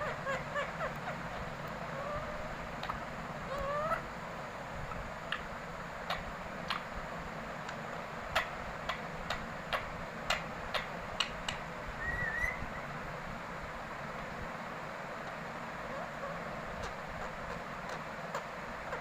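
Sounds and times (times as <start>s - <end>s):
parrot clicking: 6.1s - 6.8s, 7.6s - 11.6s
parrot rising whistle: 12.0s - 12.8s.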